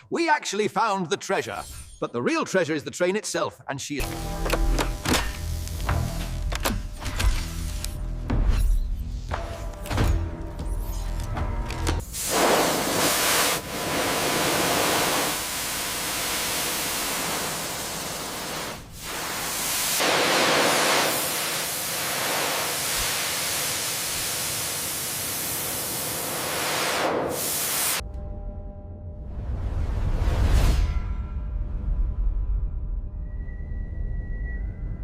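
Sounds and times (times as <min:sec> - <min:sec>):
sandblaster nozzle hissing: 0:12.0 - 0:28.0.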